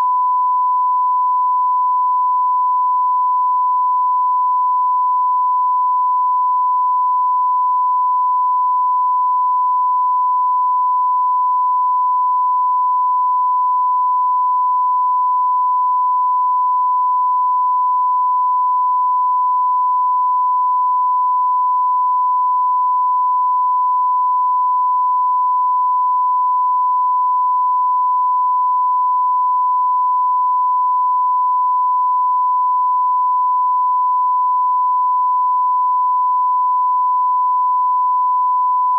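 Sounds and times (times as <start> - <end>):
steady sine test tone: 0.0 - 38.9.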